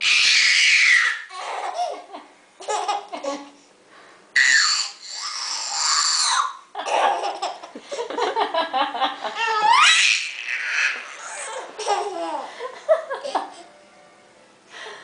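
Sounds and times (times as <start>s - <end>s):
child's high squeal: 0.0s - 1.6s, 4.4s - 6.6s
young child laughing: 6.8s - 8.0s.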